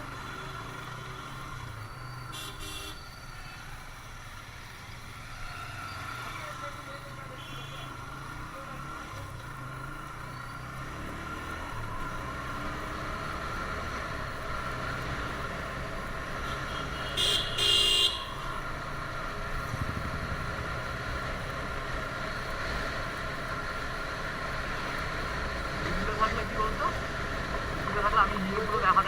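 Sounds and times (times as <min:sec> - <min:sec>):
road and wind noise: 0:00.0 - 0:29.0
vehicle horn honking: 0:02.3 - 0:03.1, 0:07.3 - 0:08.0, 0:16.4 - 0:18.6
motorcycle engine running: 0:04.0 - 0:29.0.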